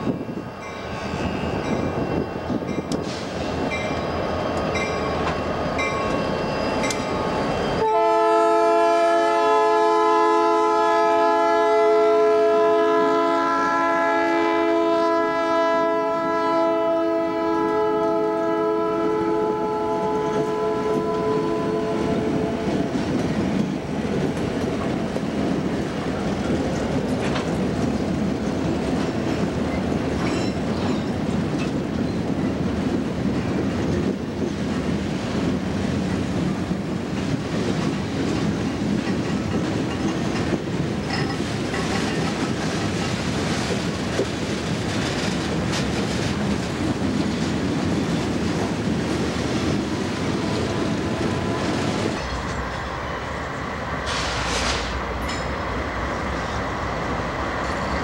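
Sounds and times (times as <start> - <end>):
freight cars rumbling on rails: 0.0 - 10.1, 17.4 - 58.0
diesel locomotive rumble: 18.8 - 58.0.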